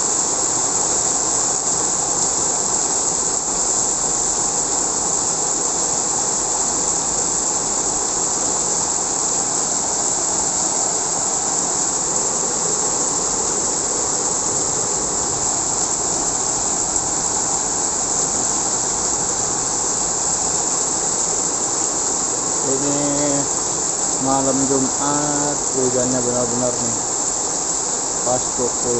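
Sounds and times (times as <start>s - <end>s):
heavy rain in strong wind: 0.0s - 28.9s.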